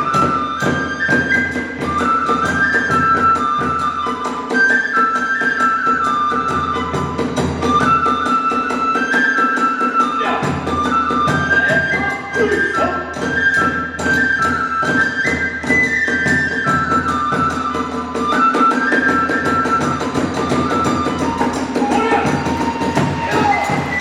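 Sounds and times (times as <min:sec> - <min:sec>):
bamboo flute melody: 0:00.0 - 0:24.0
drums beating: 0:10.2 - 0:13.4, 0:14.9 - 0:24.0.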